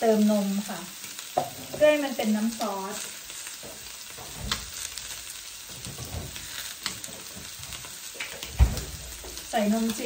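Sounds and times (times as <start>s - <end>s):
food sizzling in a pan: 0.0s - 10.0s
low thump: 8.6s - 9.0s.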